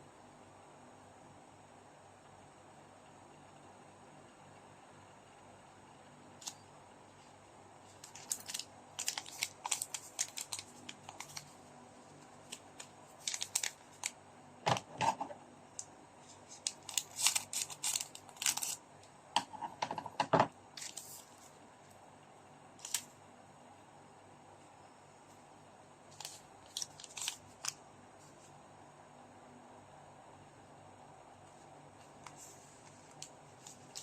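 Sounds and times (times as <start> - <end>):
trading cards clicking and crackling: 7.9 - 11.6, 12.4 - 15.2, 16.6 - 18.8, 26.1 - 27.8, 32.1 - 34.0.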